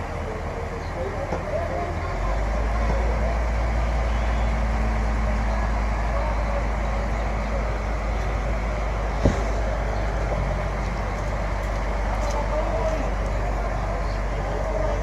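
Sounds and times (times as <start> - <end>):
diesel engine rumbling: 0.0 - 15.0
sharp knock: 9.2 - 9.6.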